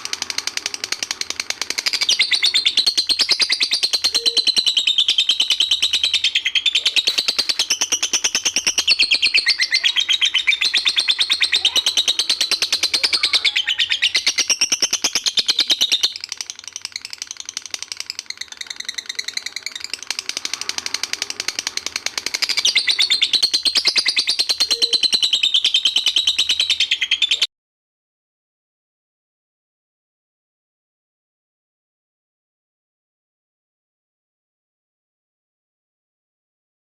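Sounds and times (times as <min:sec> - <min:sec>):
lovebird chattering trill: 0:00.1 - 0:27.5.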